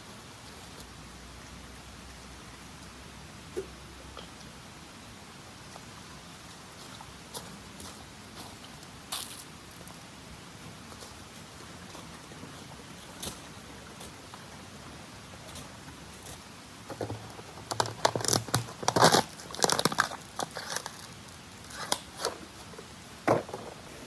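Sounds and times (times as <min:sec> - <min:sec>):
faint steady hiss: 0:00.0 - 0:24.0
camping gear crinkling and clattering: 0:15.6 - 0:24.0.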